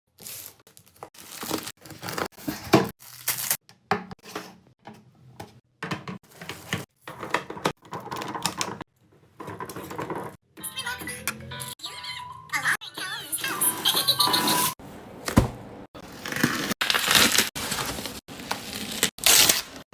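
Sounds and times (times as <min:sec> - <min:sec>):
packaging crinkling: 0:00.1 - 0:03.6
packaging tearing: 0:00.1 - 0:03.6, 0:16.1 - 0:19.8.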